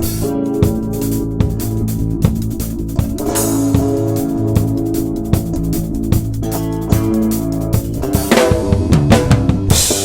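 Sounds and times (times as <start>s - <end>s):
electric bass guitar: 0.0s - 10.0s
snare and bass drum hits: 7.9s - 10.0s.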